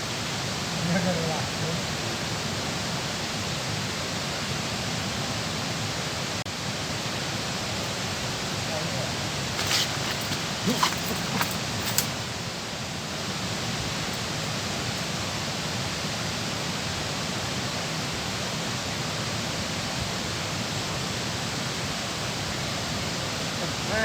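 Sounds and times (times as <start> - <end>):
water rushing over dam: 10.2 - 24.0.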